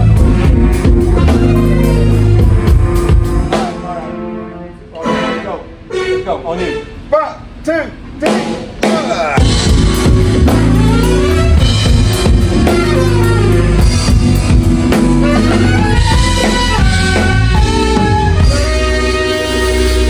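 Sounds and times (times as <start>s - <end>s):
drum kit hits: 0.0s - 4.0s, 8.2s - 20.0s
heavy bass line: 0.0s - 6.1s, 8.2s - 20.0s
live band playing: 0.0s - 20.0s.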